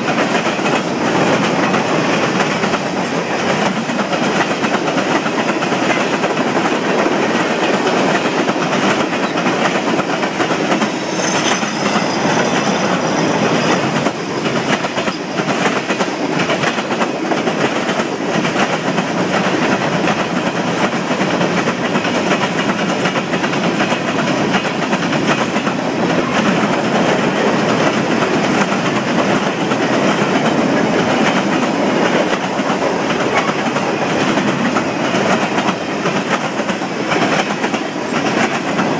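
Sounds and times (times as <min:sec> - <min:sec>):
freight train rolling past: 0:00.0 - 0:38.9
wheels clicking over rail joints: 0:00.0 - 0:38.9
faint high wheel squeal: 0:10.7 - 0:14.2, 0:14.8 - 0:15.7.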